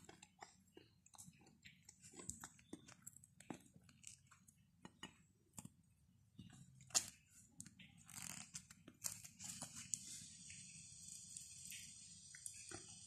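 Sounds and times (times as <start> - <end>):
person chewing: 0.0 - 5.7
flatbread tearing: 6.8 - 10.2.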